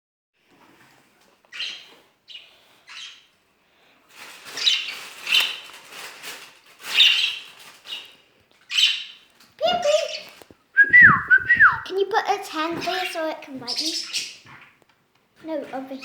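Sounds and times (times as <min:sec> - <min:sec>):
budgerigars chirping and squawking: 0:01.5 - 0:03.3, 0:04.6 - 0:05.6, 0:06.9 - 0:08.1, 0:08.7 - 0:10.3, 0:13.7 - 0:14.6.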